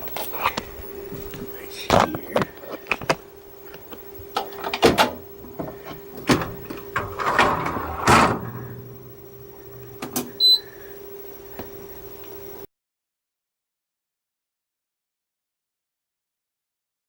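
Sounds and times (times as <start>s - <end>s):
steady low hum: 0.0s - 12.7s
dishwasher clunks and knocks: 4.6s - 9.4s
short electronic beep: 10.4s - 10.6s.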